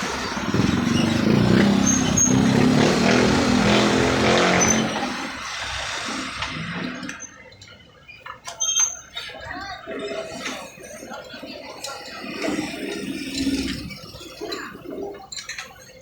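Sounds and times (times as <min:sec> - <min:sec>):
scooter engine revving: 0:00.0 - 0:07.1.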